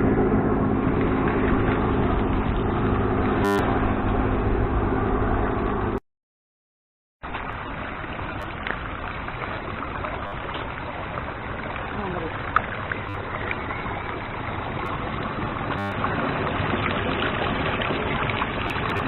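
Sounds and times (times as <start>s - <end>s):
airliner cabin engine drone: 0.0s - 6.0s
short blip: 3.4s - 3.7s, 15.8s - 16.0s.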